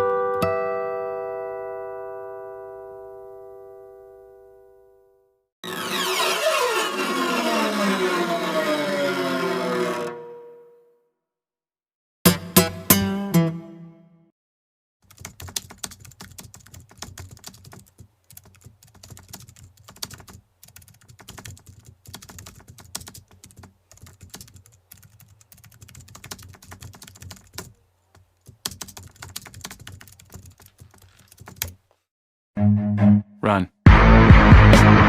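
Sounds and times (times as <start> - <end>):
fast typing on a keyboard: 15.0 - 31.8.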